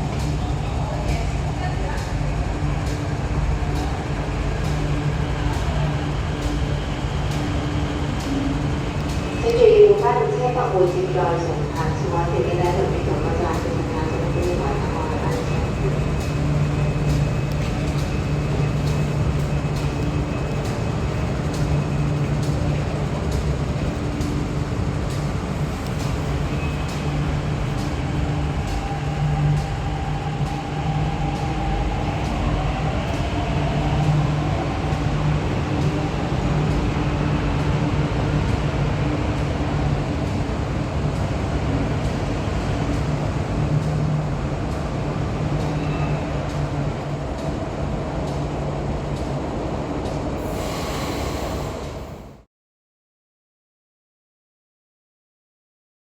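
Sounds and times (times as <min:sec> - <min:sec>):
metro train electric hum: 0:00.0 - 0:52.5
train whine rising in pitch: 0:50.4 - 0:52.5.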